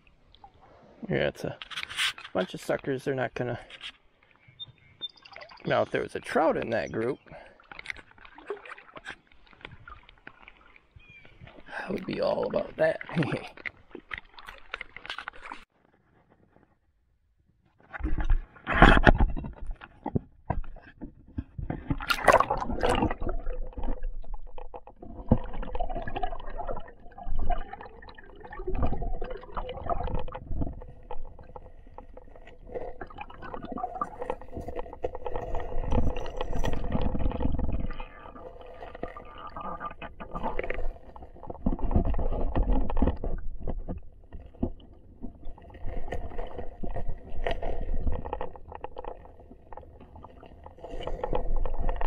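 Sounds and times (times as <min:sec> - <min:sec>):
underwater river current rumbling: 0:20.8 - 0:52.0.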